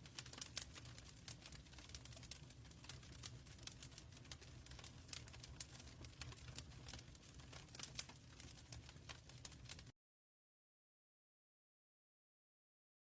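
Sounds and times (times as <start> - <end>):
wood fire crackling: 0.0 - 9.9.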